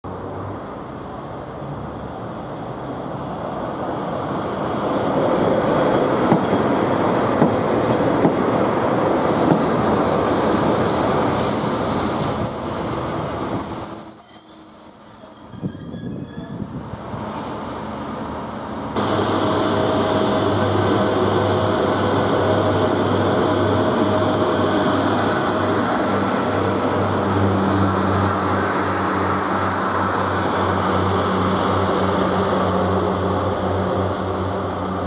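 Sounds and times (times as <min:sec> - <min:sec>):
diesel railbus rumble: 0:00.0 - 0:35.0
high squeal from running gear: 0:11.4 - 0:16.8.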